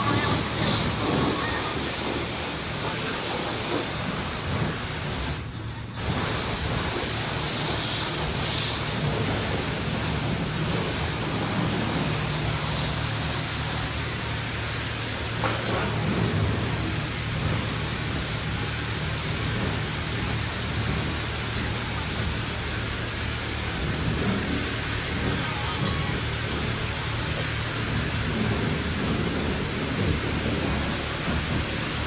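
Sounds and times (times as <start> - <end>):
pressure washer spray hissing: 0.0 - 32.0.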